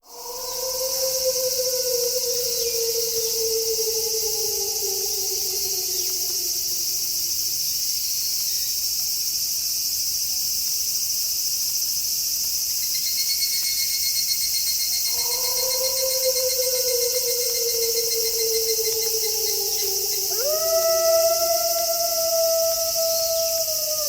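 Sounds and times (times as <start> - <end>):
wolf howling: 0.0 - 7.5, 15.1 - 24.0
pulsing insect trill: 0.0 - 8.7, 12.8 - 24.0
crickets chirping: 0.0 - 24.0.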